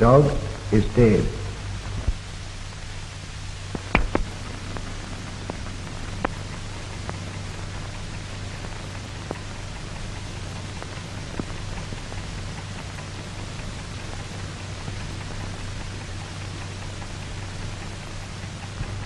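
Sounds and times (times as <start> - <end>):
film soundtrack hiss and hum: 0.0 - 19.0
crackles and pops: 1.6 - 19.0.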